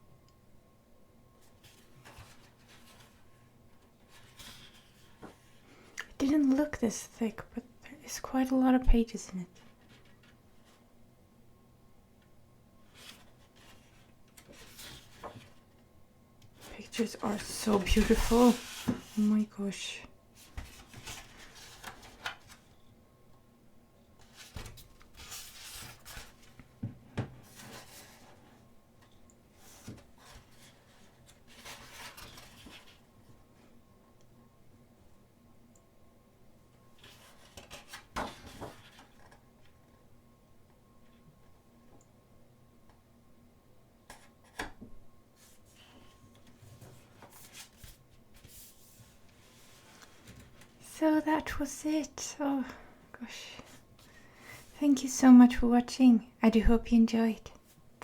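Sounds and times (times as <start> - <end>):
paper rustling: 1.5 - 3.3, 4.0 - 5.6, 12.9 - 15.6, 16.6 - 19.5, 20.4 - 22.7, 24.2 - 26.7, 27.4 - 28.5, 29.6 - 33.1, 37.0 - 39.4, 45.4 - 50.8
pages turning: 16.6 - 19.4, 20.4 - 22.7, 24.2 - 26.6, 29.6 - 33.0, 37.0 - 39.4, 46.4 - 50.7.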